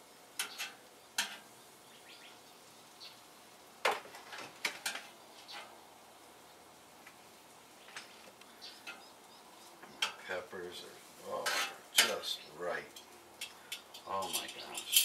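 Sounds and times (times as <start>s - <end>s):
metal utensils scraping pans: 0.4s - 1.5s, 4.2s - 5.7s, 9.9s - 10.2s, 11.4s - 12.3s, 12.9s - 15.0s
faint bird chirps: 0.5s - 3.3s.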